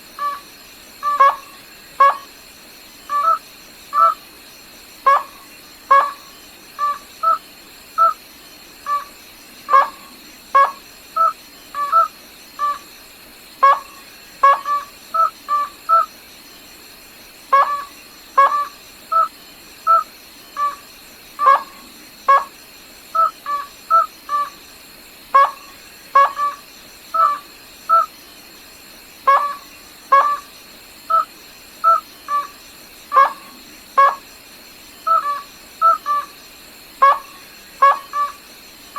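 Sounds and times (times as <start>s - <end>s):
rail bird calling: 0.2s - 2.3s, 3.1s - 4.2s, 5.1s - 8.2s, 8.8s - 12.9s, 13.6s - 16.1s, 17.5s - 22.5s, 23.2s - 24.6s, 25.4s - 28.1s, 29.3s - 30.5s, 31.1s - 34.3s, 35.0s - 36.4s, 37.0s - 38.5s.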